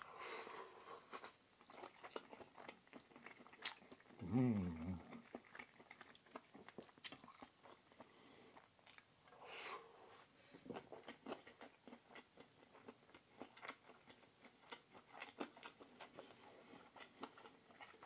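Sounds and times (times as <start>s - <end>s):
man chewing food: 0.0s - 18.0s
man humming: 4.2s - 5.1s.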